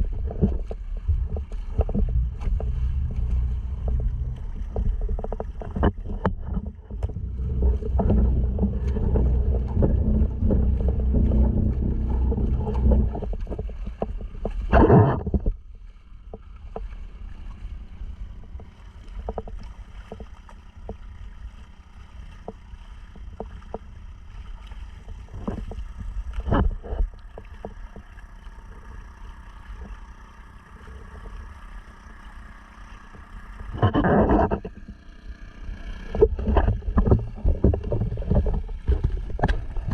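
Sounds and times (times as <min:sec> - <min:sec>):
wind on microphone: 0:00.0 - 0:15.6, 0:33.2 - 0:39.9
outboard motor running: 0:00.0 - 0:39.9
water rushing along hull: 0:00.0 - 0:39.9.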